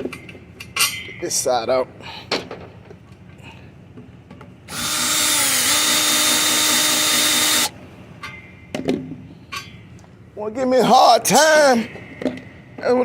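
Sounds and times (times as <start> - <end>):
power drill whining: 4.7 - 7.7.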